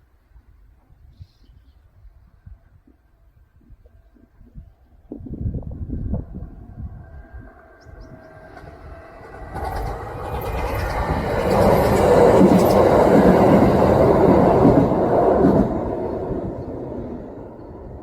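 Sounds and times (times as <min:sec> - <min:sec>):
electric train passing: 0:06.0 - 0:18.0.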